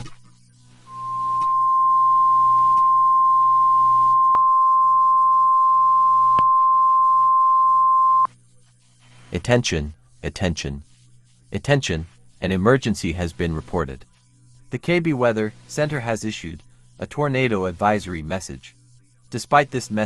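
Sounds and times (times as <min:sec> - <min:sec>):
emergency alert tone: 0:00.9 - 0:08.3.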